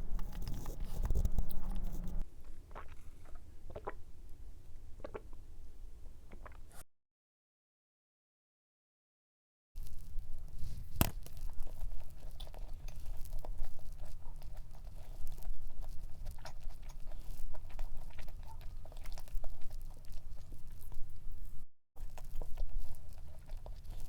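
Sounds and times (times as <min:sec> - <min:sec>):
low hum: 0:00.0 - 0:02.2
crunchy chewing of cookie: 0:00.0 - 0:04.0, 0:09.8 - 0:24.0.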